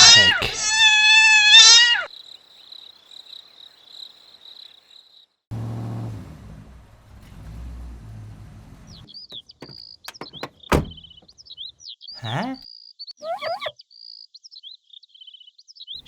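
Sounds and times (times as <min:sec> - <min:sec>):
birds chirping: 0:00.0 - 0:05.2, 0:08.7 - 0:16.0
car engine rumble: 0:05.5 - 0:11.3.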